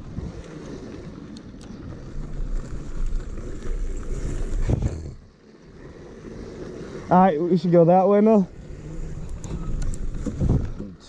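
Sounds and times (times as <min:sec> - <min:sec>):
dirt bike rattling: 0:00.0 - 0:11.0
wind noise on microphone: 0:04.4 - 0:05.2, 0:09.1 - 0:10.8.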